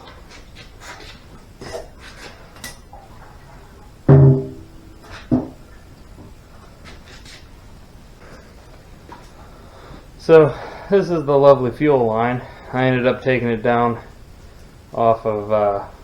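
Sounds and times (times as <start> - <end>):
loud hollow knock: 4.1 - 5.6.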